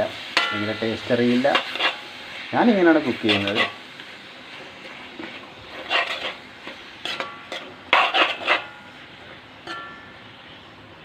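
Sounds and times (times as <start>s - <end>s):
faint sizzle: 0.0s - 11.0s
spoon scraping a cooking pan: 0.2s - 2.4s, 3.0s - 3.9s, 4.8s - 9.0s.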